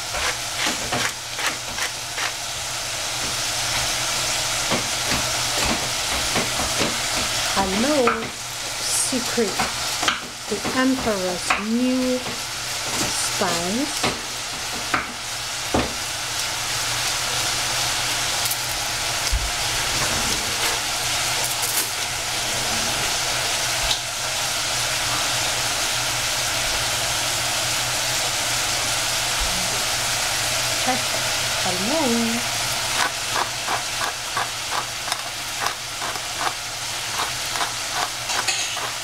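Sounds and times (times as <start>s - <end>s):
pepper mill grinding: 0.0s - 2.4s, 32.8s - 39.0s
celery sizzling in saucepan: 0.0s - 20.0s, 20.6s - 39.0s.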